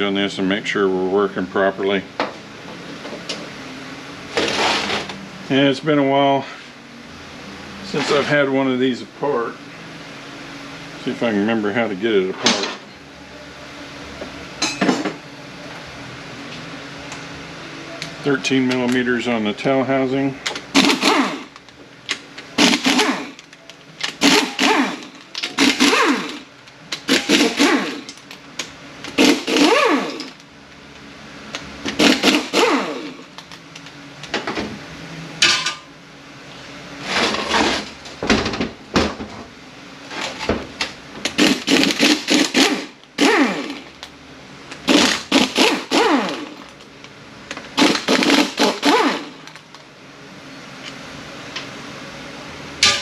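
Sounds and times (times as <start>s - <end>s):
power tool whirring: 20.7s - 21.6s, 22.6s - 28.2s, 29.1s - 30.4s, 31.9s - 33.3s, 41.3s - 44.0s, 44.8s - 46.7s, 47.8s - 49.6s.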